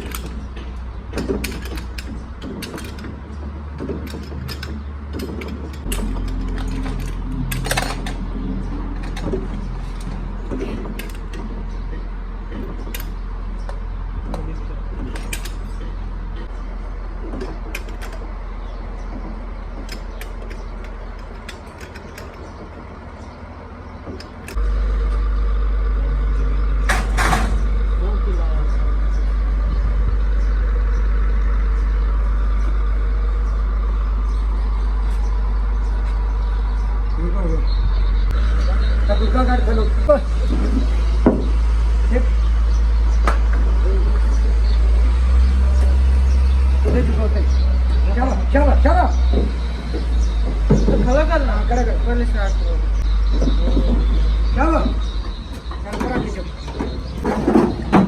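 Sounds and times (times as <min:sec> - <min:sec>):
metal tools clinking and knocking: 0:00.0 - 0:16.6, 0:17.2 - 0:23.4, 0:24.0 - 0:24.6, 0:26.9 - 0:27.7, 0:53.3 - 0:58.0
motor droning: 0:00.0 - 0:58.0
steady low hum: 0:00.0 - 0:58.0.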